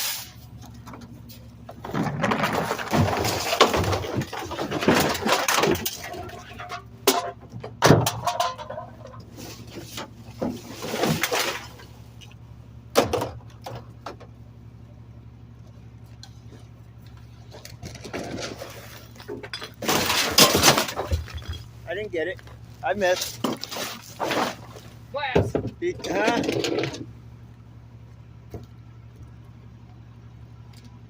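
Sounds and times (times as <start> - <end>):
garbage truck engine humming: 0.0 - 31.0
clattering and banging: 0.6 - 11.9, 17.4 - 27.1.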